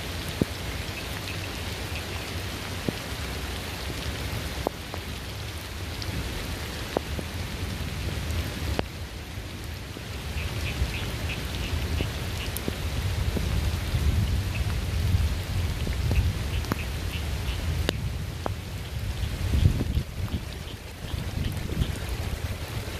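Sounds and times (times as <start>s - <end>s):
steady rain falling: 0.0s - 22.9s
distant thunder rumble: 11.8s - 22.9s.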